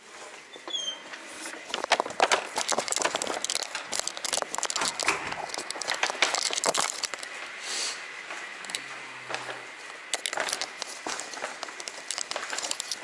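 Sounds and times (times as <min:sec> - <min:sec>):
packaging crinkling: 0:01.7 - 0:07.4, 0:10.0 - 0:13.0.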